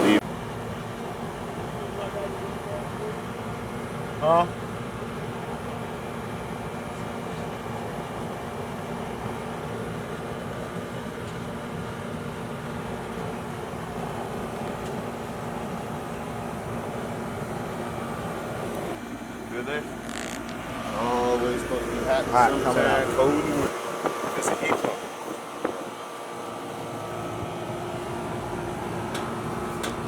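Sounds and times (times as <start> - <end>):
heat pump humming: 0.0 - 30.0.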